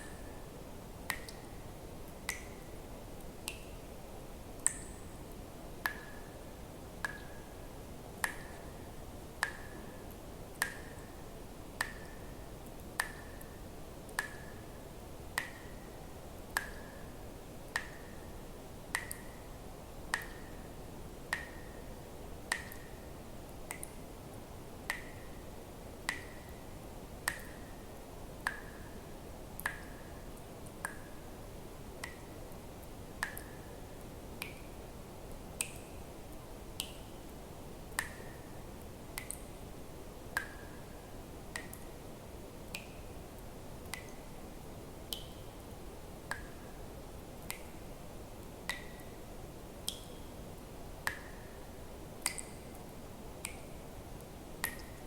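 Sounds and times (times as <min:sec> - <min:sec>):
water drops plinking into water: 0:01.1 - 0:01.6, 0:02.2 - 0:02.7, 0:03.4 - 0:03.9, 0:04.6 - 0:05.2, 0:05.8 - 0:06.4, 0:07.0 - 0:07.5, 0:08.2 - 0:08.8, 0:09.4 - 0:11.2, 0:11.8 - 0:14.7, 0:15.4 - 0:15.8, 0:16.5 - 0:17.1, 0:17.7 - 0:18.3, 0:18.9 - 0:19.5, 0:20.1 - 0:20.6, 0:21.3 - 0:21.8, 0:22.5 - 0:23.0, 0:23.7 - 0:24.0, 0:24.8 - 0:25.4, 0:26.0 - 0:26.6, 0:27.2 - 0:27.7, 0:28.4 - 0:29.0, 0:29.6 - 0:30.0, 0:32.0 - 0:32.3, 0:33.2 - 0:33.6, 0:34.4 - 0:34.7, 0:37.9 - 0:38.4, 0:39.2 - 0:39.5, 0:40.3 - 0:40.8, 0:41.5 - 0:41.9, 0:43.8 - 0:44.3, 0:45.1 - 0:45.7, 0:48.7 - 0:49.1, 0:49.8 - 0:50.3, 0:51.0 - 0:51.5, 0:52.2 - 0:52.7, 0:53.4 - 0:53.7, 0:54.6 - 0:55.0.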